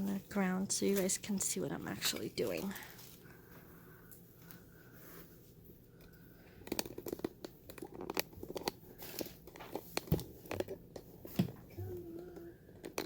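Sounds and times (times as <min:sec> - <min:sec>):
craft materials crinkling: 0:00.7 - 0:03.6.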